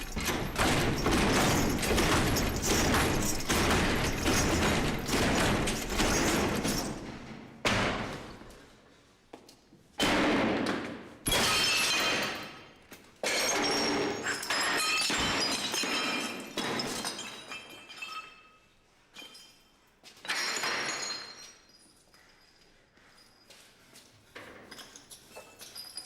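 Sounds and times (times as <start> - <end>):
clattering debris: 0.0 - 7.2, 13.2 - 18.4.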